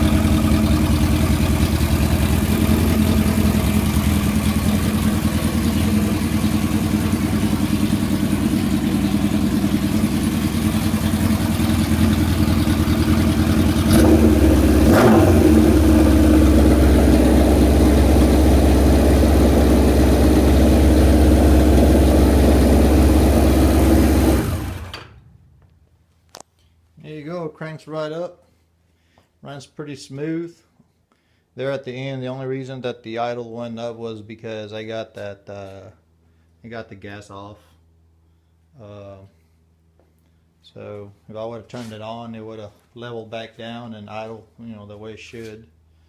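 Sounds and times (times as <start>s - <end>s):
motorcycle engine idling: 0.0s - 24.9s.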